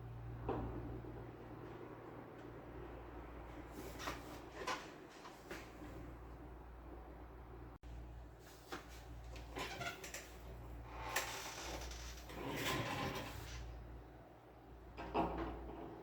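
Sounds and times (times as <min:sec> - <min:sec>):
low steady hum: 0:00.0 - 0:04.0.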